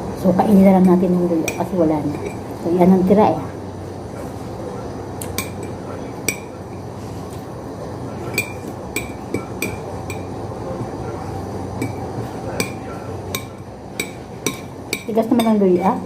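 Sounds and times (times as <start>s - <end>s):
cutlery clinking against a plate: 5.2s - 6.8s, 8.2s - 10.3s, 11.8s - 15.9s.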